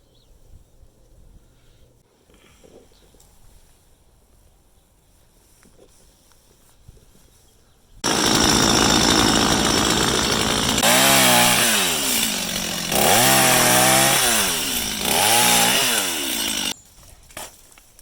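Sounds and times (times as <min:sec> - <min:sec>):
chainsaw engine revving: 0:08.0 - 0:16.8.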